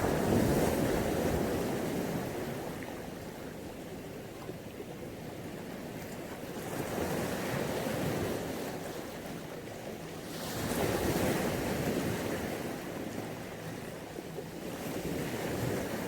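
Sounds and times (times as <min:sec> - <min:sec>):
waves washing onto beach: 0:00.0 - 0:16.0.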